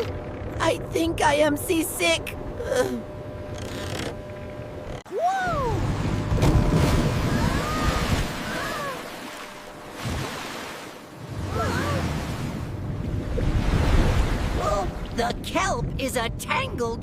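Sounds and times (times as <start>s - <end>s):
wind: 0.0s - 17.0s
rushing waves: 5.5s - 15.4s.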